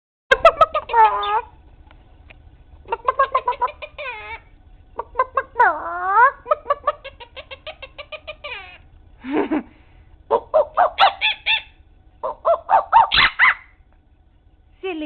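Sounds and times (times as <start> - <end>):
parrot mimicking calls: 0.4 - 1.6, 2.8 - 8.9, 10.3 - 13.8.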